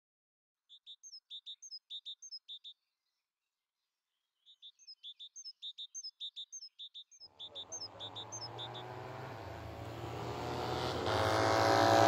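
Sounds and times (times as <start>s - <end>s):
small bird chirping: 0.6s - 3.4s, 4.0s - 9.4s.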